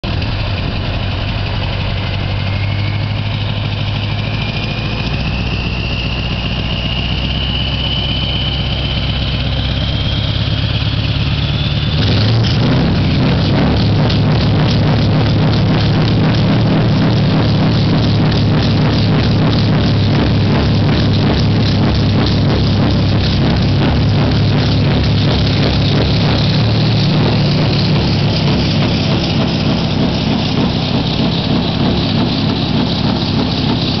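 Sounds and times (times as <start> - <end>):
truck engine running: 0.0 - 34.0.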